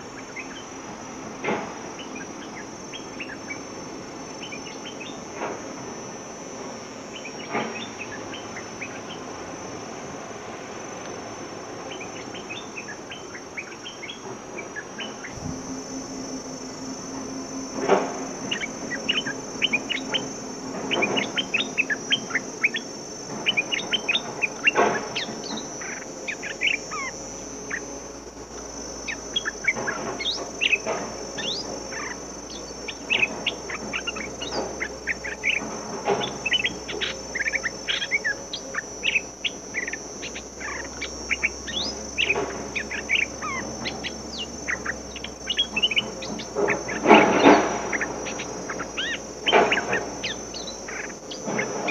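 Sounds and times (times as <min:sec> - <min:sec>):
high insect drone: 0:00.0 - 0:51.9
birds chirping and whistling: 0:11.9 - 0:28.0, 0:29.0 - 0:51.9.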